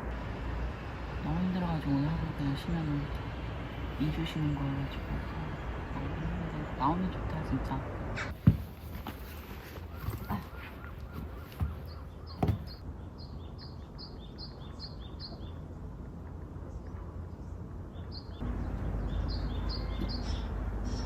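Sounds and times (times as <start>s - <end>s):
sharp knocks: 8.3s - 8.8s, 11.2s - 12.8s
bird chirping rapidly: 9.9s - 15.8s, 17.9s - 21.0s.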